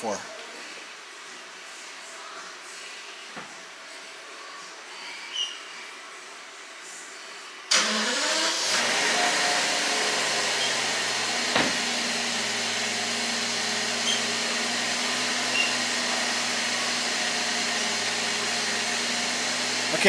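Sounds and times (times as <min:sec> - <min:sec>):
car engine starting and idling: 0:07.7 - 0:20.0
sharp tap: 0:11.5 - 0:11.8.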